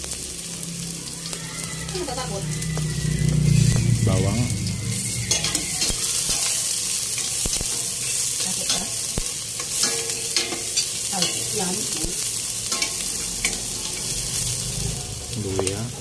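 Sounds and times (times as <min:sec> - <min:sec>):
onion and garlic sizzling in oil: 0:00.0 - 0:16.0
metal spatula scraping a pot: 0:03.6 - 0:14.6.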